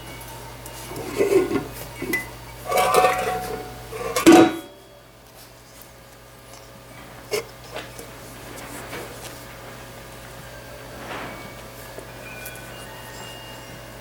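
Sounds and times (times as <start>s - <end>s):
metal pans clattering: 0.8s - 4.8s.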